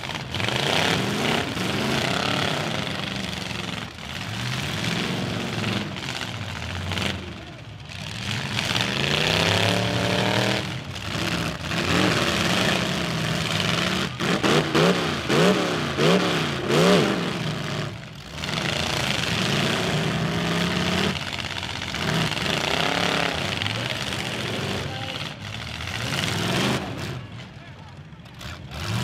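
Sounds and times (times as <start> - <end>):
car engines revving: 0.0 - 29.0.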